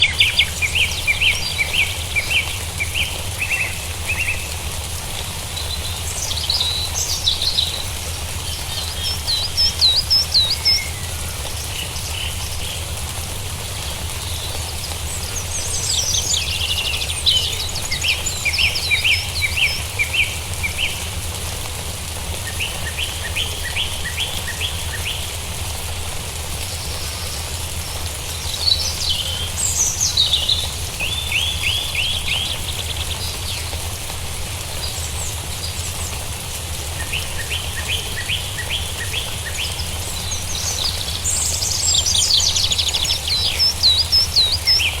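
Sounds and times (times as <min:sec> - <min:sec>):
birds chirping and whistling: 0:00.0 - 0:04.6, 0:05.5 - 0:12.9, 0:14.1 - 0:21.2, 0:26.8 - 0:33.8, 0:36.9 - 0:45.0.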